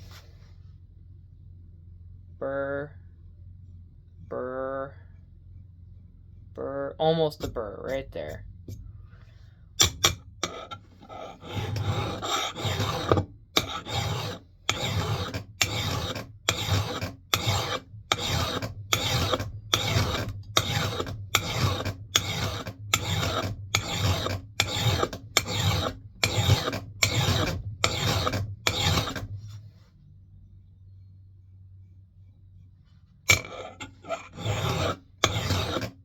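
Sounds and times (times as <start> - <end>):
hand file rasping on steel: 9.8 - 29.4, 33.3 - 36.0.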